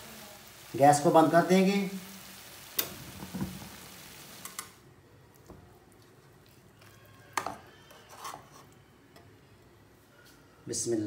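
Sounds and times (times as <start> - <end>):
food sizzling in oil: 0.0 - 4.8.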